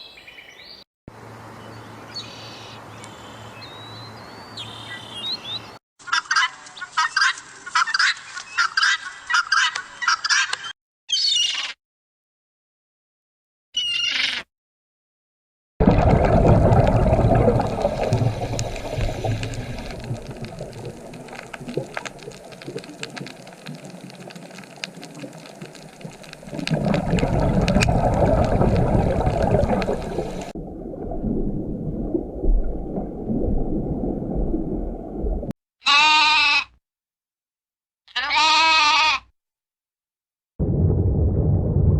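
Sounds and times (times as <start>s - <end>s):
goat bleating: 35.8s - 36.8s, 38.1s - 39.3s.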